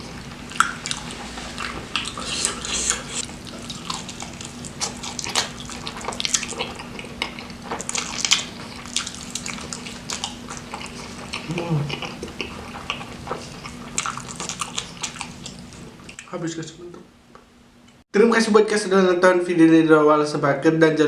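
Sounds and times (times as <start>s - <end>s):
person chewing with wet smacks: 0.5s - 16.3s.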